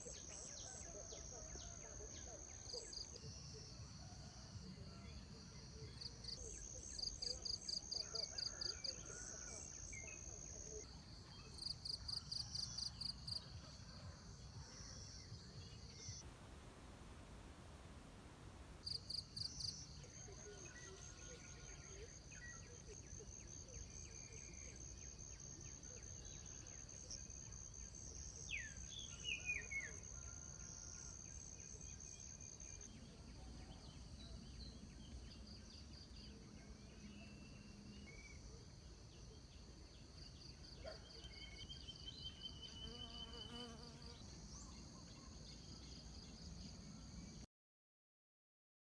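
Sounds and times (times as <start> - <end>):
crickets chirping trills: 18.8 - 47.4.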